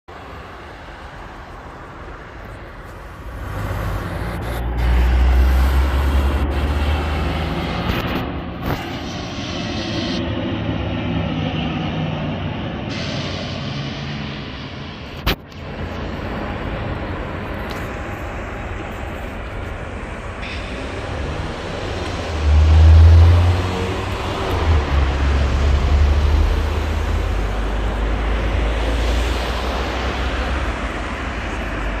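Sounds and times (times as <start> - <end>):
turboprop engines running: 7.6 - 22.5.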